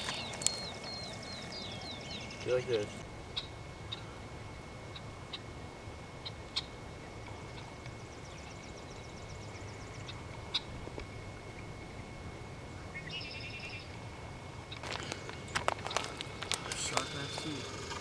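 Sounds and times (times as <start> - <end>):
bird trilling: 0.0 - 4.2, 12.8 - 13.9, 14.7 - 18.0
birds chirping: 0.0 - 4.2, 4.8 - 14.0, 14.6 - 18.0
outdoor background noise: 0.0 - 18.0.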